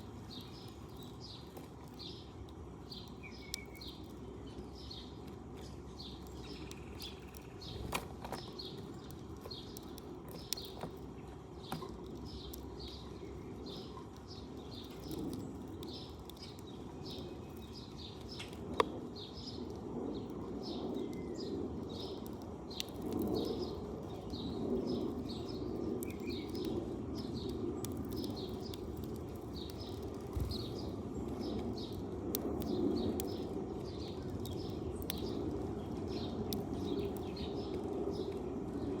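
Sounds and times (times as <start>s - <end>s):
sparrow chirping: 0.3s - 9.8s, 20.6s - 32.0s.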